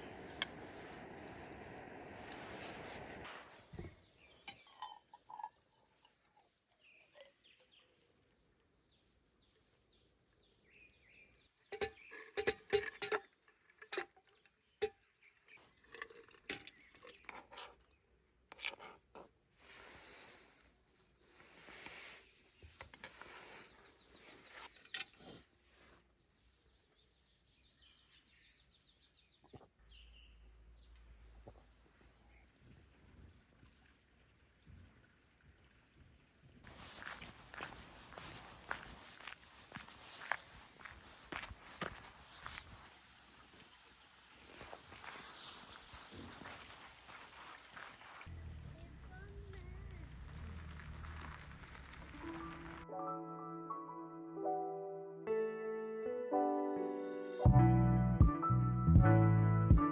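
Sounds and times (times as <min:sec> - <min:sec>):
objects being handled: 0:11.7 - 0:19.8, 0:21.5 - 0:25.5.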